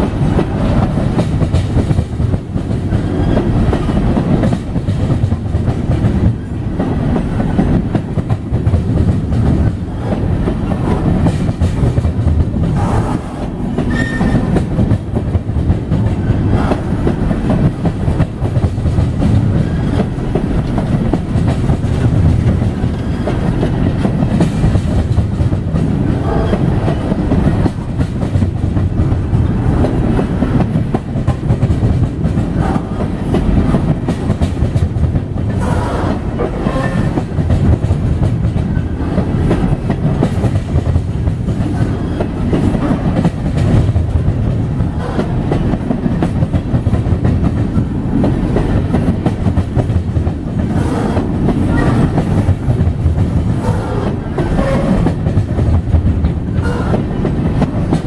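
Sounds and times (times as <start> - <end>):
train wheels rumbling on rail: 0.0 - 58.0
wheels clacking over rail joints: 0.0 - 58.0.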